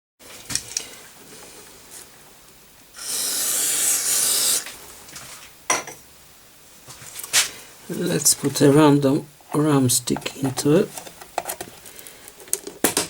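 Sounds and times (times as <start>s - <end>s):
steady hiss: 2.9s - 5.1s.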